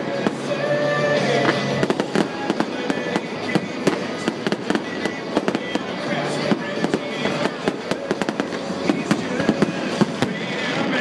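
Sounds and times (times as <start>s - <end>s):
crackling fireworks: 0.0s - 11.0s
fireworks pops and bangs: 1.2s - 11.0s.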